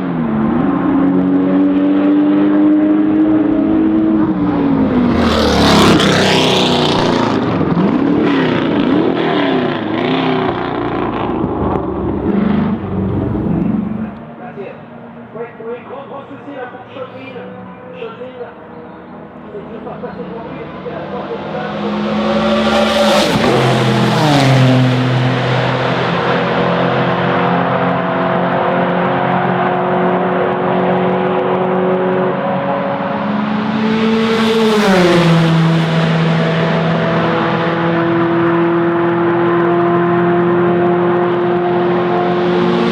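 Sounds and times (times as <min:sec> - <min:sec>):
racing car engine revving: 0:00.1 - 0:14.3, 0:19.6 - 0:42.9.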